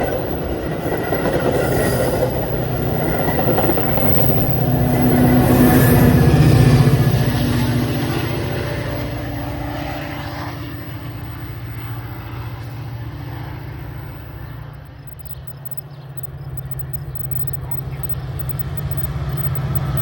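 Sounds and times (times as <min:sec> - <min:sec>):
train engine rumble: 0:00.0 - 0:15.4.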